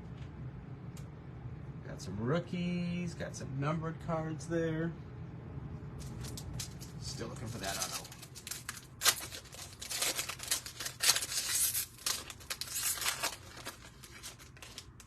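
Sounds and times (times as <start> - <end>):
cards rustling: 6.0 - 15.0
foil pack tearing and crinkling: 6.0 - 15.0.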